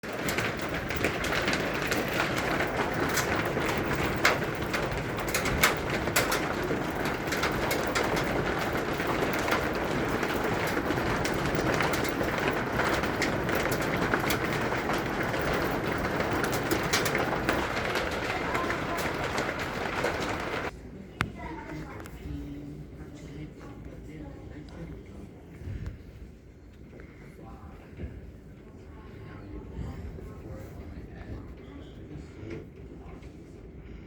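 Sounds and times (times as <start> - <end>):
hailstones striking hard surfaces: 0.0 - 20.7
heavy rain pouring: 0.1 - 20.7.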